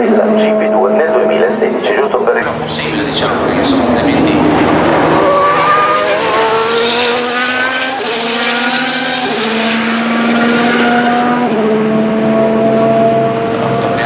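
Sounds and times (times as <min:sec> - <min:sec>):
racing car engine at high revs: 0:00.0 - 0:14.0.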